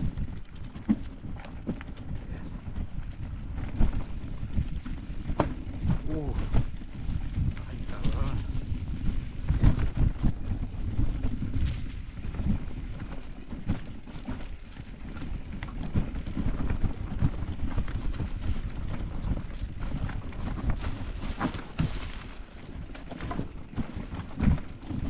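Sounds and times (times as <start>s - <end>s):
bike knocks and rattles: 0.0s - 25.0s
mountain bike rolling on rough trail: 0.0s - 25.0s
wind on microphone: 0.0s - 25.0s.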